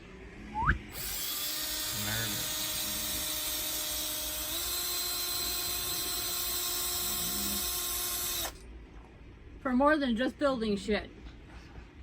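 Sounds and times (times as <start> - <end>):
electric drill whining: 0.9 - 8.6.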